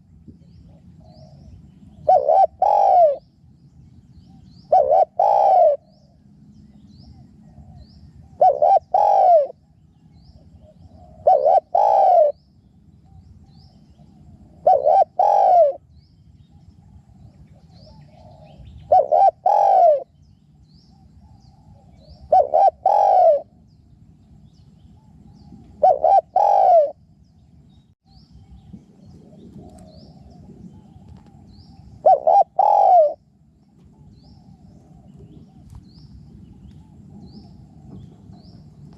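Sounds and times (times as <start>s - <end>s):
dove cooing: 0.7s - 3.2s, 4.3s - 6.3s, 7.1s - 9.7s, 10.5s - 12.4s, 13.9s - 15.9s, 16.9s - 20.2s, 21.2s - 23.6s, 25.0s - 27.0s, 29.2s - 33.3s.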